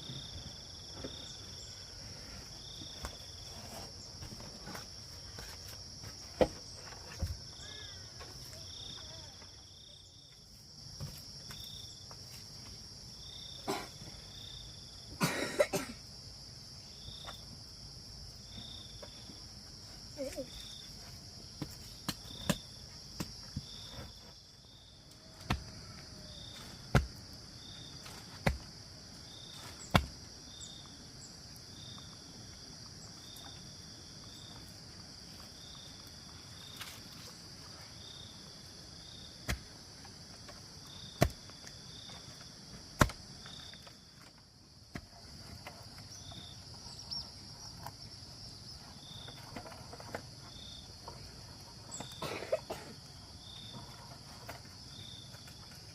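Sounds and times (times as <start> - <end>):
insect chorus: 0.0 - 55.9.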